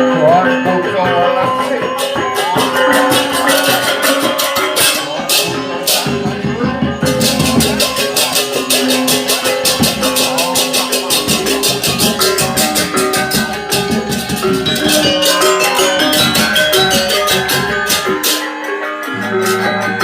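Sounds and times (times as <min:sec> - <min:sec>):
ringing bronze metallophones: 0:00.0 - 0:20.0.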